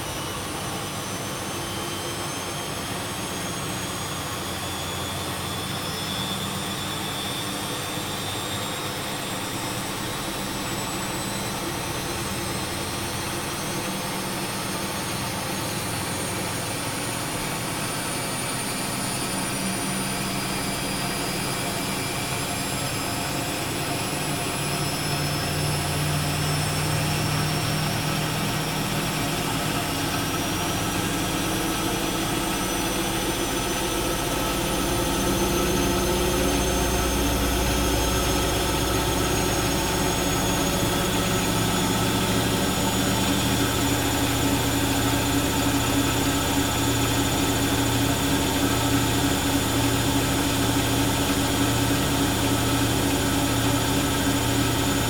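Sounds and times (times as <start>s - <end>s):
washing machine drum spinning: 14.8s - 55.0s.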